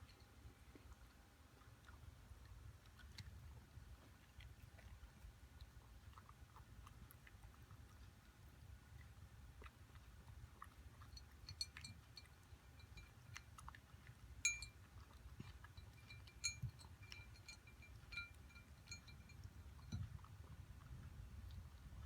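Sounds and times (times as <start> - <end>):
clinks on food bowl: 11.1 - 13.7, 14.4 - 20.1.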